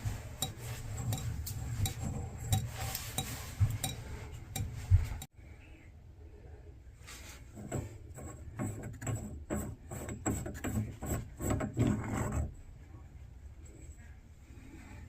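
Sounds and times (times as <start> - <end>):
knocks and scrapes of metal parts: 0.0 - 5.3, 7.5 - 12.6.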